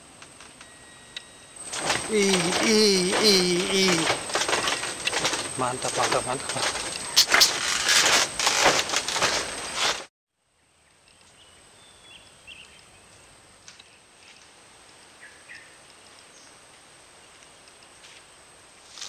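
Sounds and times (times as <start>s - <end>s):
loud rustling with knocks: 1.6s - 10.1s.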